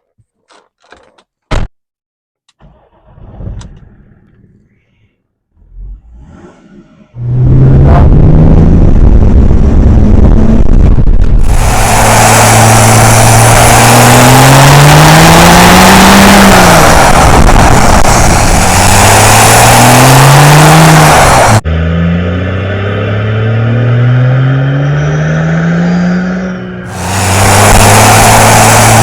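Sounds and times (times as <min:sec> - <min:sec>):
diesel car engine accelerating: 0:05.5 - 0:29.0
loud rushing noise: 0:07.3 - 0:21.7, 0:26.9 - 0:29.0.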